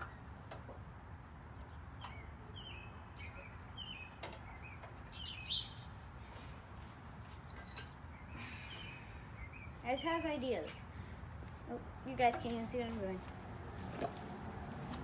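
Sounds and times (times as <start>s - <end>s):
bird chirps: 1.6s - 6.0s, 8.0s - 9.8s.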